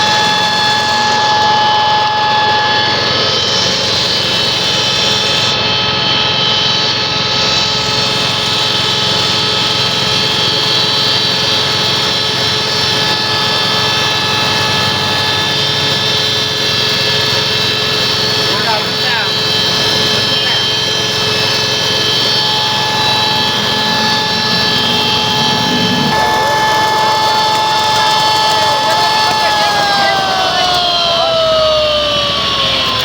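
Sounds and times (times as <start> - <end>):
loud even whine: 0.0 - 33.0
mill grinding coffee beans: 25.9 - 31.6.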